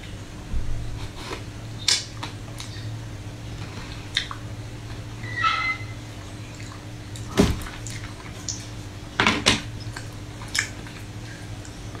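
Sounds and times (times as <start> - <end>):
low electrical hum: 0.0 - 12.0
wet chewing smacks and clicks: 1.8 - 2.9, 4.1 - 4.5, 6.4 - 8.9, 9.7 - 12.0.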